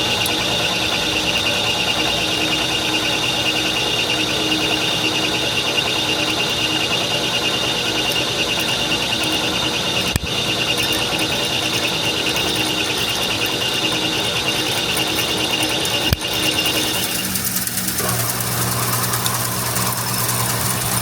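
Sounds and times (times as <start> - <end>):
machinery high whine: 0.0 - 21.0
machinery rushing din: 16.0 - 21.0.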